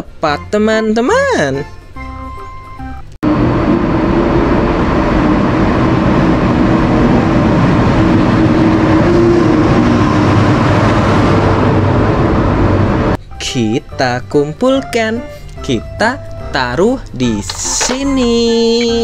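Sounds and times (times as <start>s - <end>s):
high-speed train rushing past: 3.2s - 13.2s
low hum: 3.2s - 13.2s.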